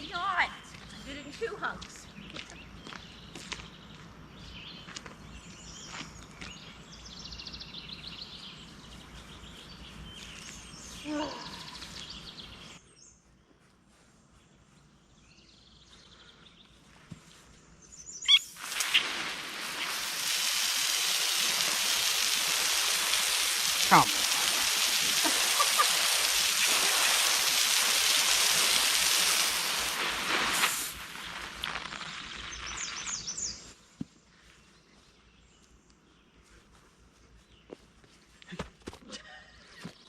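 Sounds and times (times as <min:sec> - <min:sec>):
birds chirping: 0:00.0 - 0:38.4
loud steady hiss: 0:18.4 - 0:33.3.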